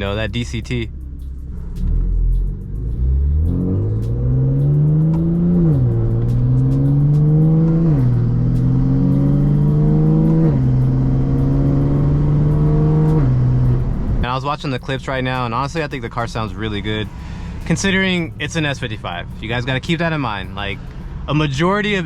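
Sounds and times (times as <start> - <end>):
car engine accelerating hard: 0.0 - 15.1.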